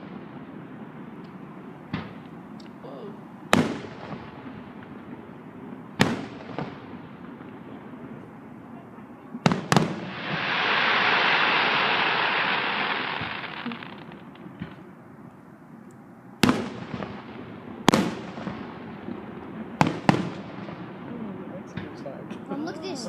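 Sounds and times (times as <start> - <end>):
fireworks bangs: 0.0 - 15.0, 16.4 - 22.4
fireworks crackling hiss: 9.3 - 15.0, 16.4 - 23.0.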